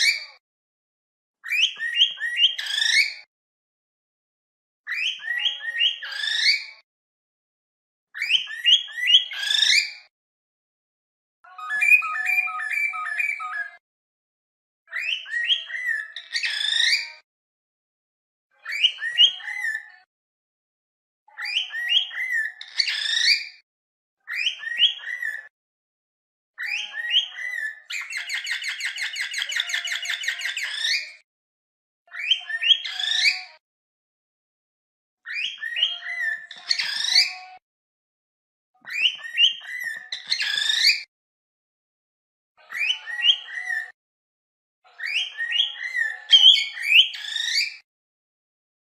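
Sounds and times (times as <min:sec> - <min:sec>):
cockatiel whistling and chirping: 0:01.4 - 0:03.2, 0:04.9 - 0:06.8, 0:08.2 - 0:10.0, 0:11.5 - 0:13.8, 0:14.9 - 0:17.1, 0:18.6 - 0:19.8, 0:21.4 - 0:23.6, 0:24.3 - 0:25.5, 0:26.6 - 0:31.2, 0:32.1 - 0:33.6, 0:35.3 - 0:37.5, 0:38.8 - 0:41.1, 0:42.6 - 0:44.0, 0:45.0 - 0:47.8.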